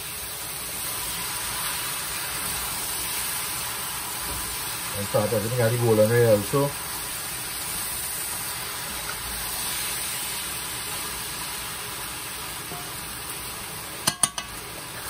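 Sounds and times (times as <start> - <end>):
food sizzling in a metal pot: 0.0 - 15.0
spoon knocking against pot: 14.0 - 14.6.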